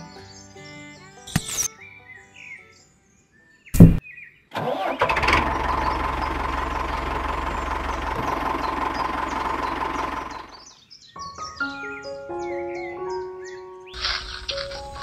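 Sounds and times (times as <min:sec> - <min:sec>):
small engine running: 0:04.8 - 0:10.6.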